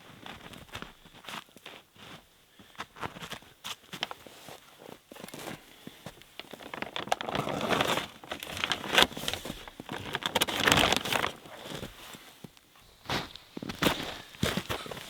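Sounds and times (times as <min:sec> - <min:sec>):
footsteps crunching through snow: 0:11.0 - 0:15.0.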